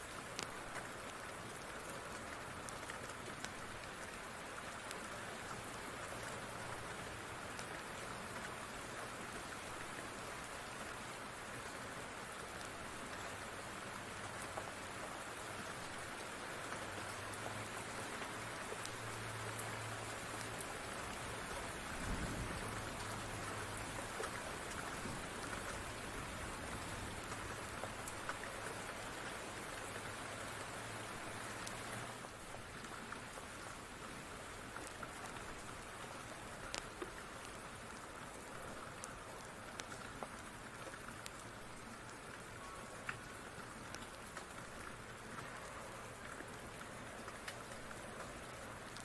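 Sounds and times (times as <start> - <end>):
steady rain falling: 0.0 - 49.0
wood fire crackling: 34.8 - 49.0.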